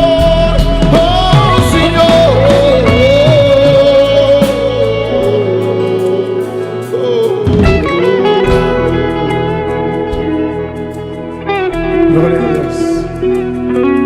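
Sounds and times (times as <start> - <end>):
worship band music: 0.0 - 14.0.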